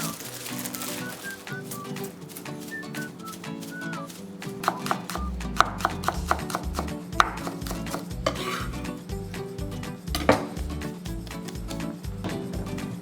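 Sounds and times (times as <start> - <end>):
background music: 0.0 - 13.0
knife chopping on cutting board: 4.6 - 8.7, 10.1 - 10.7.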